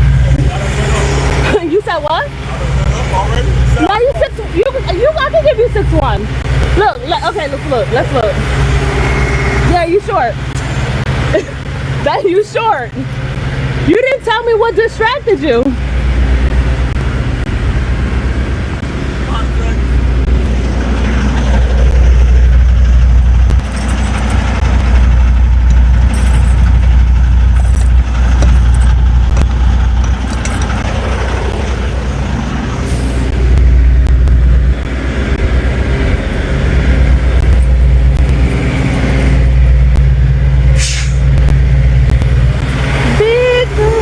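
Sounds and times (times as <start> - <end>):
truck diesel engine humming: 0.0 - 44.0
air hiss: 40.8 - 41.3.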